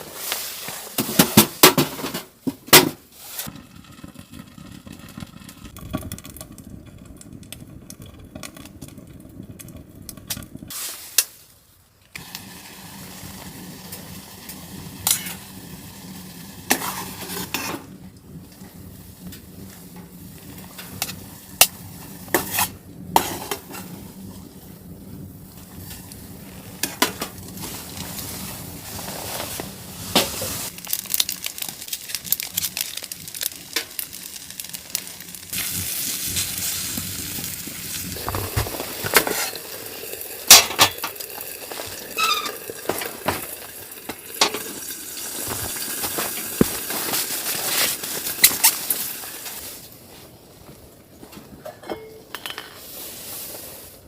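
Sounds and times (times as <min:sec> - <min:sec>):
food sizzling in a pan: 0:12.2 - 0:17.9, 0:26.4 - 0:49.9.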